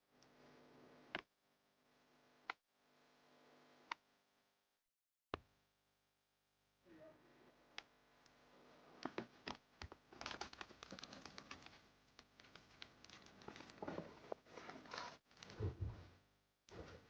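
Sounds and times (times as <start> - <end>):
faint crackling and clicking: 9.0 - 15.6.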